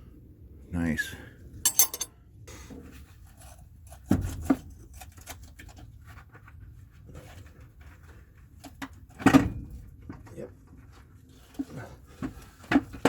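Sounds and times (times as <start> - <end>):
metal tools clinking and scraping: 1.7 - 2.1.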